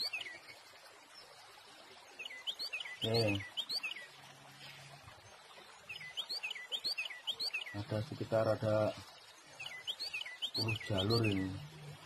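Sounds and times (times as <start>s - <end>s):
small bird chirping: 0.0s - 0.6s, 2.1s - 4.8s, 5.8s - 8.0s, 9.1s - 12.0s.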